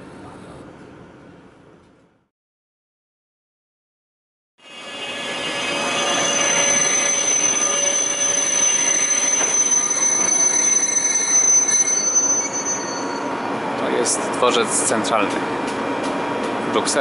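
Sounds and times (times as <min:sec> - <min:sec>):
metal-on-metal squeal: 0:04.6 - 0:13.6
train rumble: 0:04.8 - 0:17.0.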